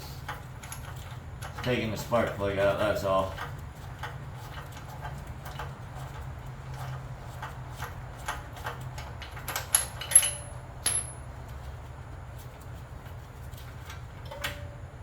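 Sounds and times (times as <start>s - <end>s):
metal hand tools clinking: 9.3s - 11.2s
sharp ringing metallic clinks: 9.7s - 11.3s.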